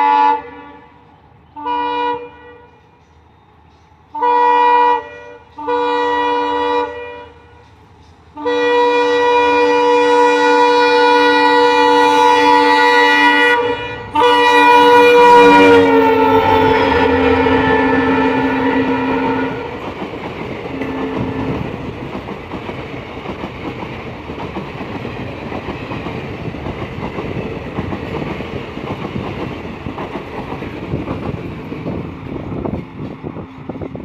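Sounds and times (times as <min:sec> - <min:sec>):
train horn blasts: 0:00.0 - 0:03.0, 0:04.1 - 0:07.7, 0:08.4 - 0:22.0
train rumbling past: 0:00.0 - 0:34.0.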